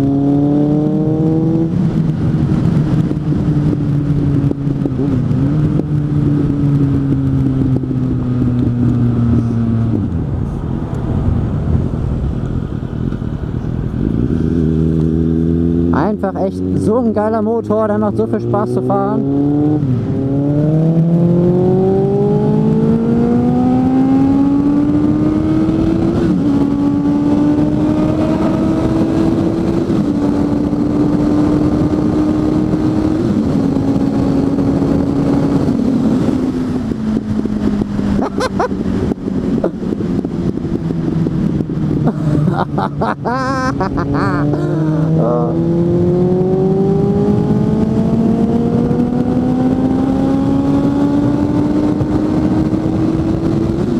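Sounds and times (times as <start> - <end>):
motorcycle engine revving through gears: 0.0 - 10.6, 13.0 - 43.1, 43.7 - 53.9.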